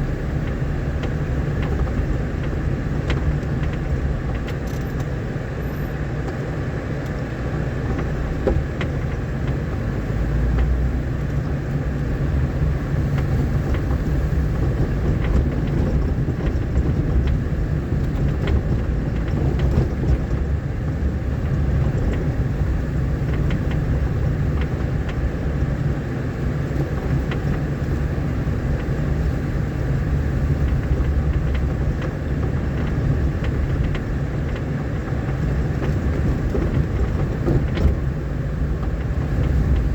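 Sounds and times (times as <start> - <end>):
vehicle rumbling on dirt road: 0.0 - 39.9
small knocks and rattles: 7.9 - 25.6, 30.4 - 39.9.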